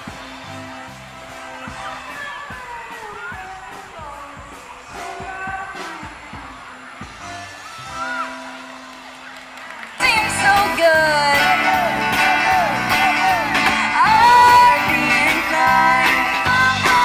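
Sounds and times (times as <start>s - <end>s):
guitar: 0.0s - 17.0s
person singing with a band: 1.6s - 8.2s, 10.0s - 17.0s.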